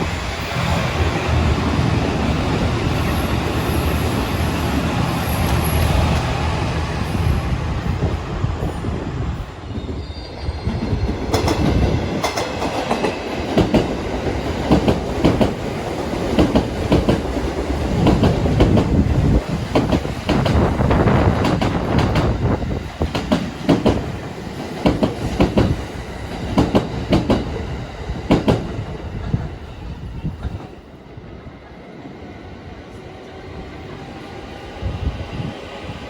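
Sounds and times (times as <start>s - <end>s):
train rumble: 0.0s - 32.2s
train wheels clacking over rail joints: 11.3s - 19.0s, 19.6s - 20.8s, 23.0s - 27.6s, 28.3s - 29.5s.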